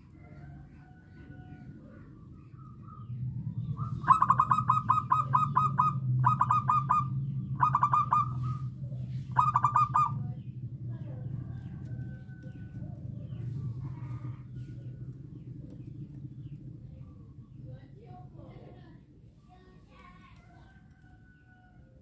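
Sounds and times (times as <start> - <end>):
steady low hum: 0.0 - 20.2
dove cooing: 2.1 - 10.5.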